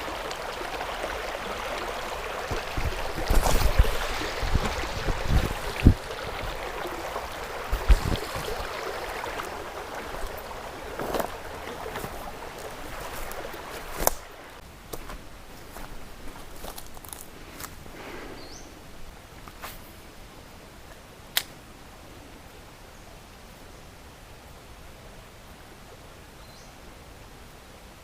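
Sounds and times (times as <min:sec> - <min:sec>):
creek water running: 0:00.0 - 0:23.4
low thumps: 0:07.7 - 0:08.7.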